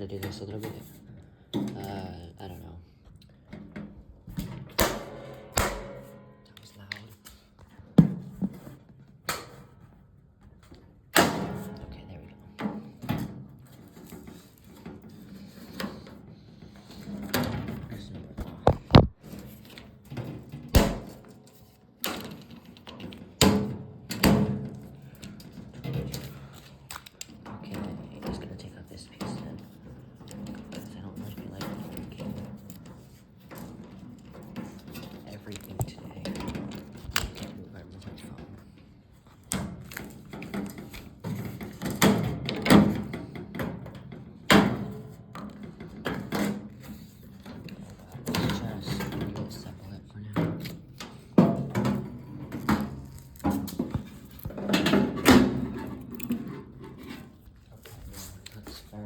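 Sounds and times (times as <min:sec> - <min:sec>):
metal bangs and clanks: 0:04.7 - 0:06.4, 0:20.8 - 0:21.2.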